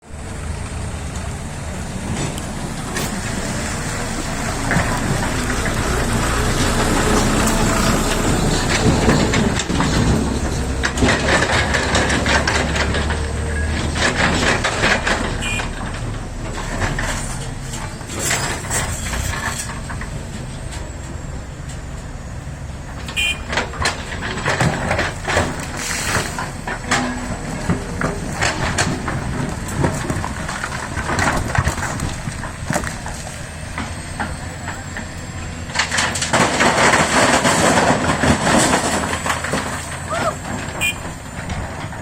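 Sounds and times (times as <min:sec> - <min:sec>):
excavator diesel engine running: 0:00.0 - 0:42.0
bucket clanking and scraping: 0:00.2 - 0:42.0.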